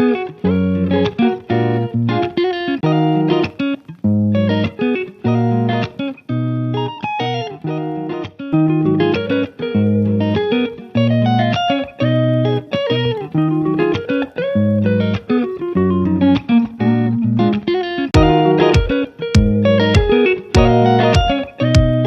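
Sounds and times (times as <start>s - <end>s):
plucked guitar pattern: 0.0s - 22.0s
steady bass line: 18.2s - 22.0s.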